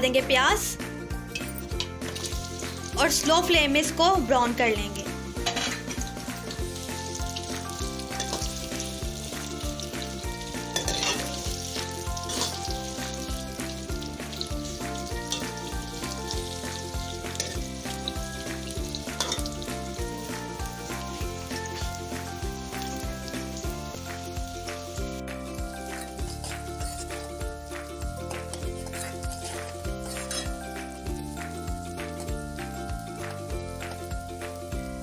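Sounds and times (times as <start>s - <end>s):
onions sizzling in oil: 0.0s - 35.0s
soft background music: 0.0s - 35.0s
spoon stirring: 10.8s - 11.4s, 12.2s - 12.7s, 25.5s - 27.4s, 28.2s - 31.0s.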